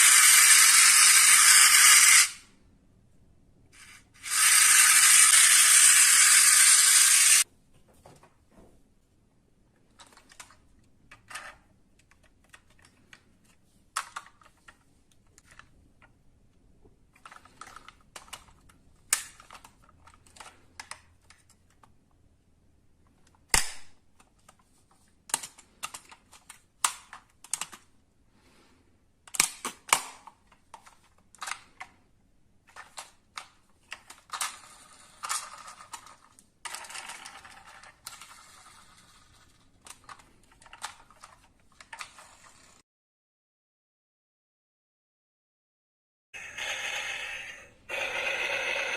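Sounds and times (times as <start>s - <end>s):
metal toy cars clicking and rattling: 0.0s - 2.4s, 3.8s - 7.4s, 17.1s - 21.9s, 32.7s - 42.8s.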